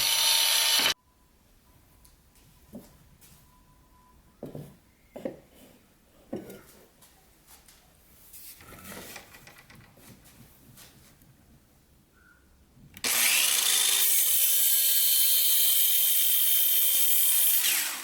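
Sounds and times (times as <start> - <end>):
wood scraping and shuffling: 4.5 - 11.2.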